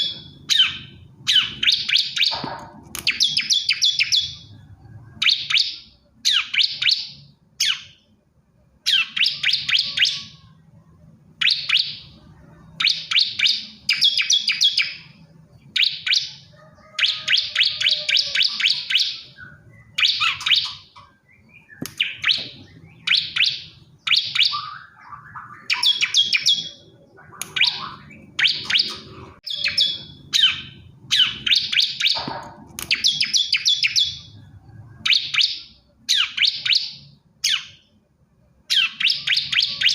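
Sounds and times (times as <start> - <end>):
bird singing high trilled notes: 3.1 - 8.1, 8.8 - 10.6, 11.4 - 34.4, 38.7 - 39.9.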